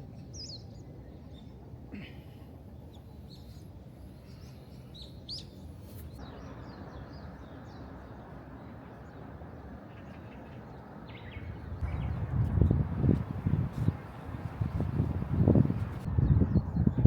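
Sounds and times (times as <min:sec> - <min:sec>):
small birds chirping: 0:02.8 - 0:17.0
low rumbling surges: 0:10.8 - 0:17.0.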